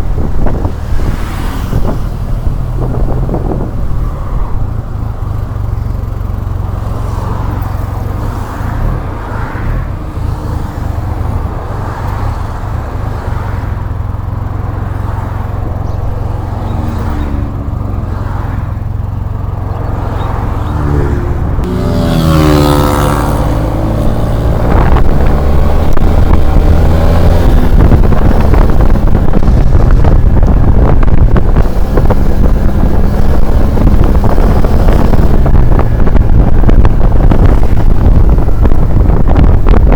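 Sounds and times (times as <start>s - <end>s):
wind rumbling on microphone: 0.0s - 39.9s
scooter engine running: 4.6s - 8.2s, 13.8s - 39.9s.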